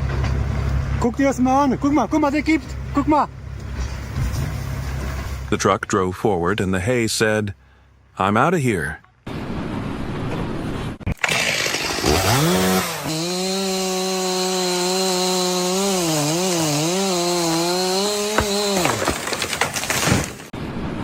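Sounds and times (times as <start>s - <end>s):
small high-revving power tool motor: 11.2s - 18.8s.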